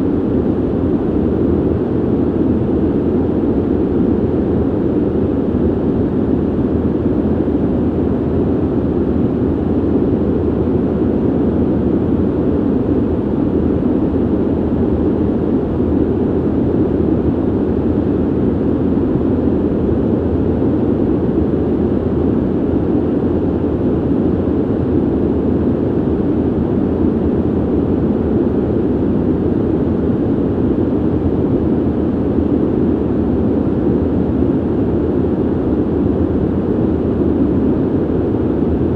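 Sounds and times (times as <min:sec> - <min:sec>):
ventilation air rushing: 0:00.0 - 0:38.9.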